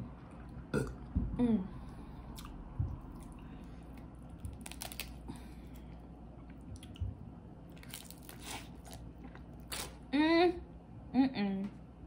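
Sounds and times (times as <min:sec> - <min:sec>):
soft chewing with mouth clicks: 0:02.3 - 0:10.0.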